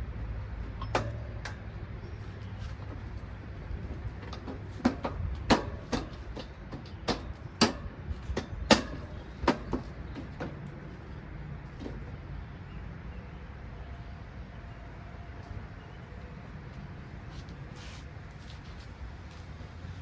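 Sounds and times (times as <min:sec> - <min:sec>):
sharp knocks and clunks: 0:03.8 - 0:10.9.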